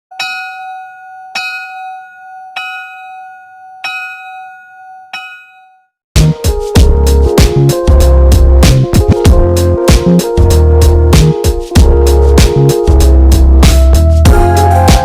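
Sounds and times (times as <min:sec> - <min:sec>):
bell ringing: 0:00.1 - 0:06.0
loud music with a beat: 0:06.2 - 0:15.0.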